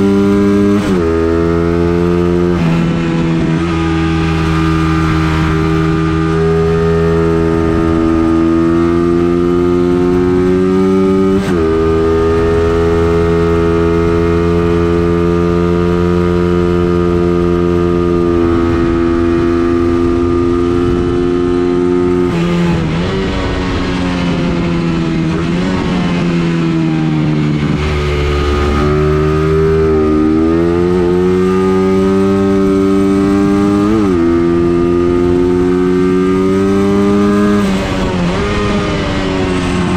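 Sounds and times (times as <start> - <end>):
racing engine accelerating: 0.0 - 39.9.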